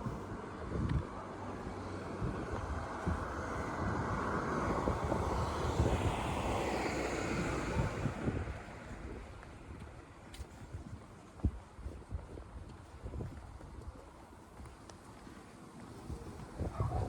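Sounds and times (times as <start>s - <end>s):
vehicle passing by: 1.4s - 9.0s.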